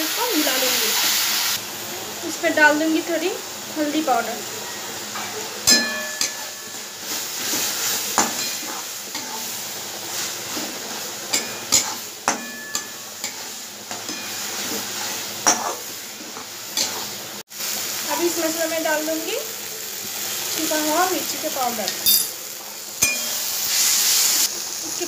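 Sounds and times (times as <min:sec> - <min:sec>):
masala sizzling in oil: 0:00.0 - 0:25.0
metal spatula stirring and scraping: 0:05.0 - 0:17.2
spatula clinking against pan: 0:05.2 - 0:06.9, 0:08.2 - 0:09.4, 0:11.3 - 0:14.5, 0:23.0 - 0:23.4.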